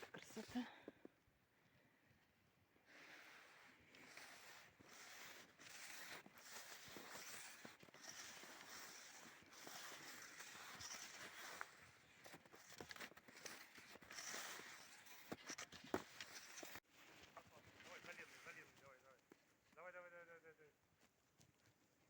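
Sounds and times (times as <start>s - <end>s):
skis crunching over snow: 2.9s - 20.1s.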